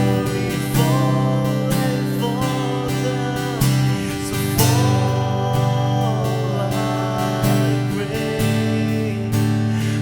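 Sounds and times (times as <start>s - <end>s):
acoustic guitar strumming: 0.0s - 10.0s
person singing: 0.0s - 10.0s.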